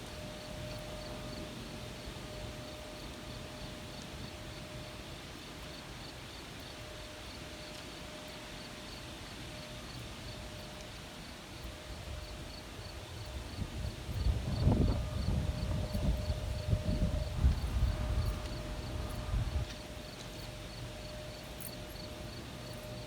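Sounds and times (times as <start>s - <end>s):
insects chirping: 0.0s - 9.1s, 9.8s - 23.0s
low rumble of wind: 9.8s - 23.0s.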